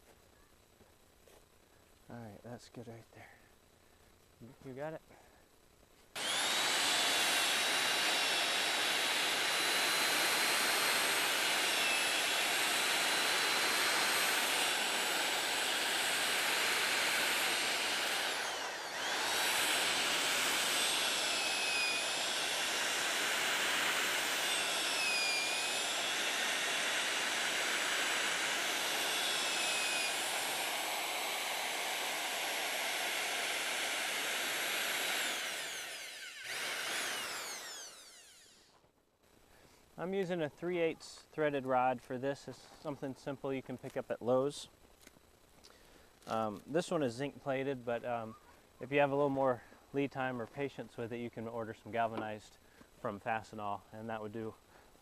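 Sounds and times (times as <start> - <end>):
electric drill boring wood: 6.2 - 38.8.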